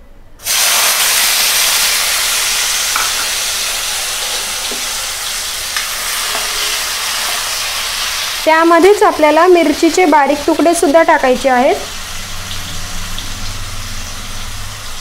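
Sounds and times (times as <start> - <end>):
tomatoes sizzling in hot oil: 0.4 - 15.0
spatula scraping: 6.0 - 7.6.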